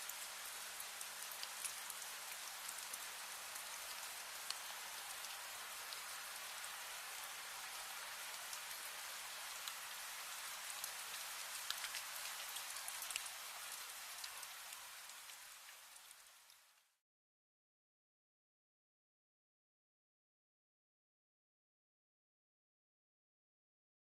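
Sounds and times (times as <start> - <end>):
steady rain hiss: 0.0 - 17.0
raindrops ticking: 0.1 - 6.1, 10.8 - 15.8.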